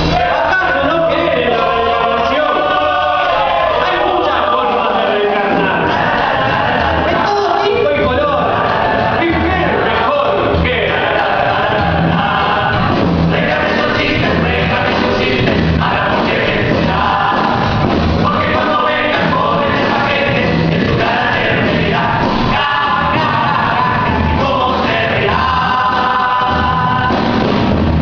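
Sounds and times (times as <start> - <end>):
live band playing: 0.0 - 28.0
voices singing together: 0.0 - 28.0.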